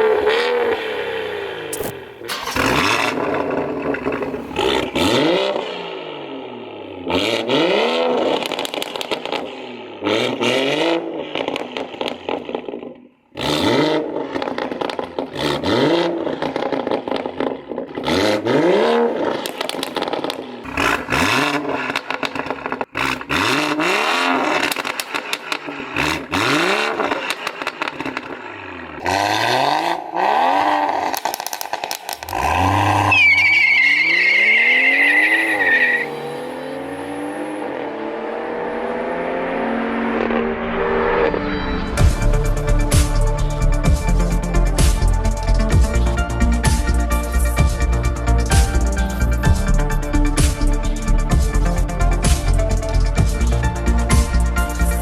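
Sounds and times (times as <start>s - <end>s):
car engine revving: 0.0s - 55.0s
exhaust crackles and pops: 1.7s - 5.8s, 8.3s - 9.7s, 14.2s - 15.5s, 16.3s - 18.0s, 19.2s - 29.0s, 30.9s - 33.7s.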